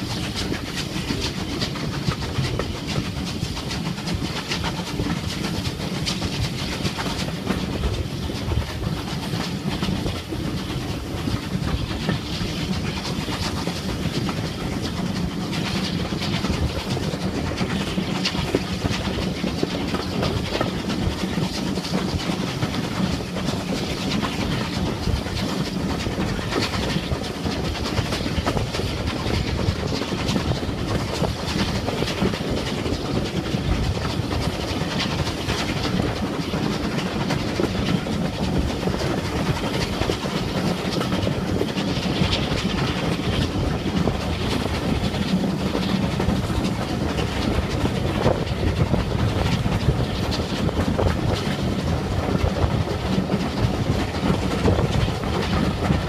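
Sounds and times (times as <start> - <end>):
rail joints clicking: 0.0 - 56.0
train wheels on rails: 0.0 - 56.0.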